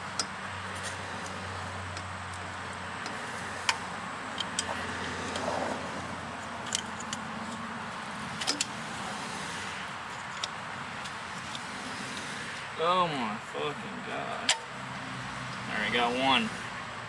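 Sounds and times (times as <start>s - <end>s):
sharp metallic clicks: 0.1s - 5.5s, 6.4s - 7.6s, 8.3s - 8.8s, 10.1s - 12.6s, 14.4s - 14.8s.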